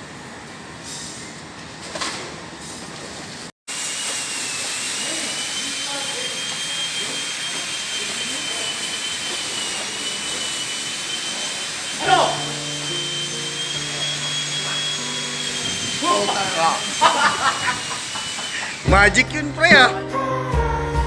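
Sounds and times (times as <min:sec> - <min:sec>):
machine rushing hiss: 0:03.7 - 0:19.9
high machine whine: 0:03.7 - 0:20.1.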